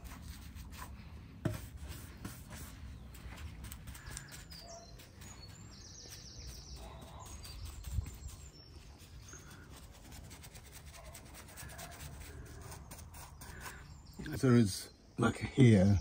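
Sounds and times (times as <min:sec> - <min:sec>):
paintbrush scratching on concrete: 0:00.0 - 0:13.9
small birds chirping: 0:00.1 - 0:16.0
bird rapid trill: 0:03.9 - 0:10.2.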